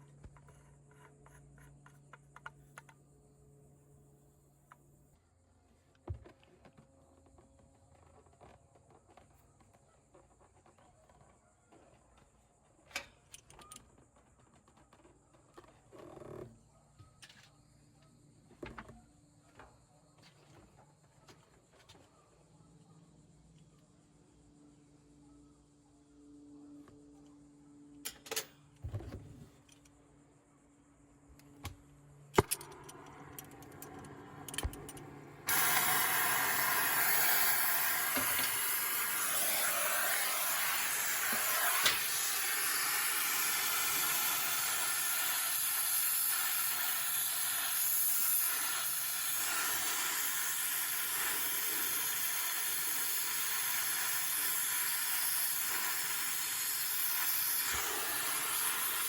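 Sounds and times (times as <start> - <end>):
pressurized gas hissing: 33.4 - 59.0.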